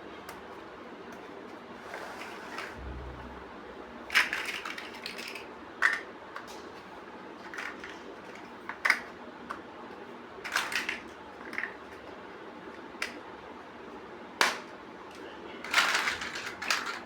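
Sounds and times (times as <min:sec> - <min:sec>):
plastic bricks clicking together: 0:15.7 - 0:17.0.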